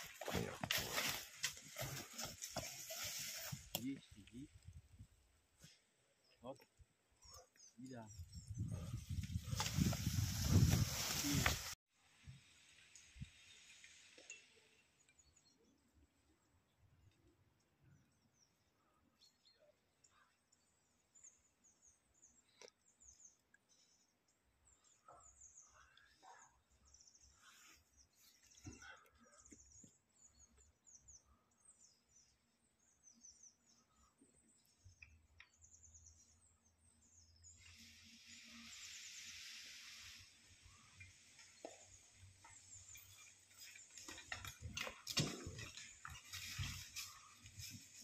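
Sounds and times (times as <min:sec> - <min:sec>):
rush of hissing noise: 0:37.7 - 0:41.3.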